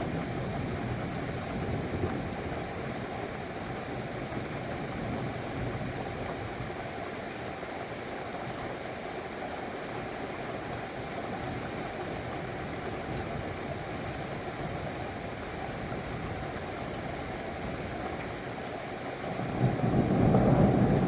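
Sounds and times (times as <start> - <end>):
steady rain hiss: 0.1 - 21.0.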